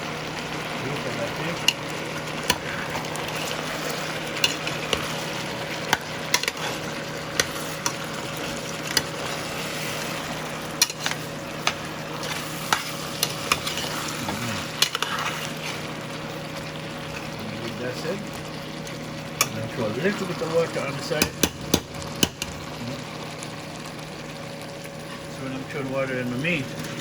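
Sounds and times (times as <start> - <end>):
chicken sizzling in a pot: 0.0 - 27.0
spoon knocking against pot: 21.2 - 22.6.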